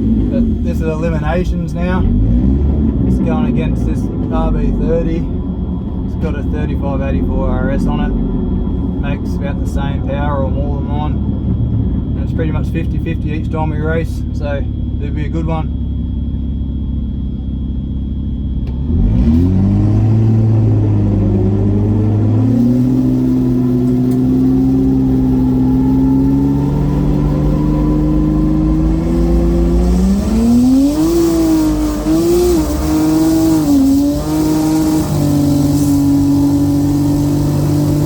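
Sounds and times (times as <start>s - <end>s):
car accelerating hard: 0.0s - 5.4s, 18.6s - 38.0s.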